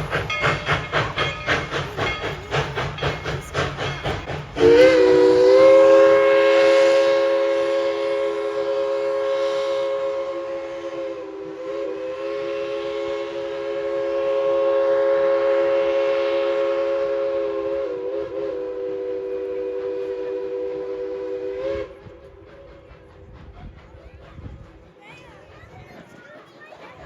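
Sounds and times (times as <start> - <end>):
steam locomotive whistle: 2.7 - 23.3.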